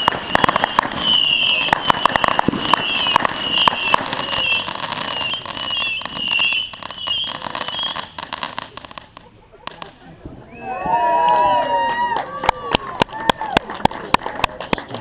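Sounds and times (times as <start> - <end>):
high-pitched firework whistle: 0.0 - 8.8, 9.8 - 11.6
fireworks crackling pops: 0.0 - 15.0.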